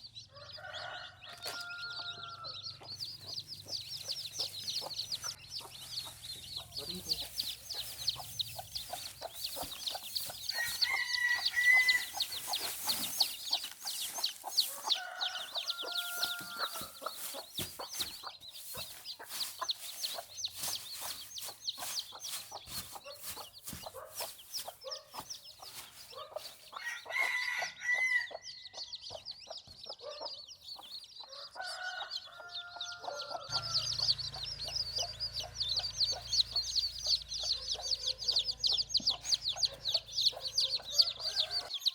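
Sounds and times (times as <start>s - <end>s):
chicks peeping: 0.0s - 41.9s
rooster crowing: 0.3s - 2.7s, 10.5s - 12.3s, 14.6s - 17.2s, 26.8s - 28.4s, 31.3s - 36.1s, 40.7s - 41.9s
hens clucking: 0.7s - 27.4s, 31.7s - 41.9s.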